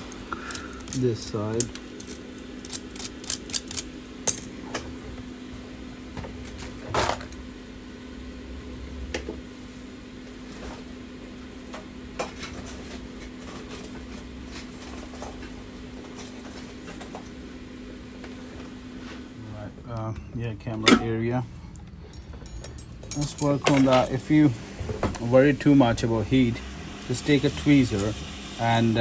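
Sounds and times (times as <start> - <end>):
heat gun humming: 0.0 - 7.8, 20.7 - 29.0.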